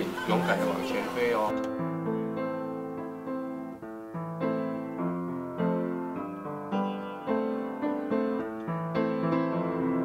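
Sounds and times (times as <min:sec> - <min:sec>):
soft piano music: 0:00.0 - 0:10.0.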